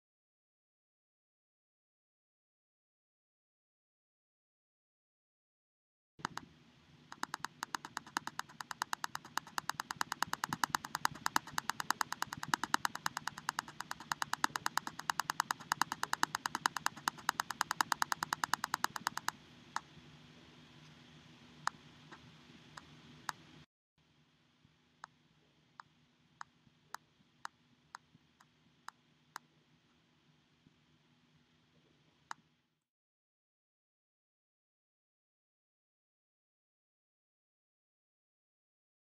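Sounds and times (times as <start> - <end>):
faint low hum: 6.2 - 32.8
rapid even clicks: 7.1 - 19.9.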